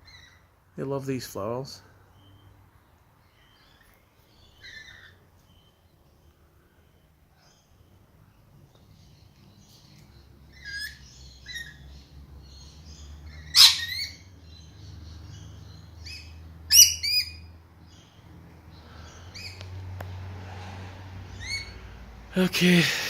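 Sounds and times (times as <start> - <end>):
parrots chirping: 0.0 - 0.5, 3.4 - 5.7, 8.9 - 19.7, 21.3 - 22.0
parrot screeching: 10.5 - 11.8, 13.3 - 14.2, 16.1 - 17.5, 21.4 - 21.8
parrot sharp calls: 13.3 - 14.2, 16.0 - 17.5.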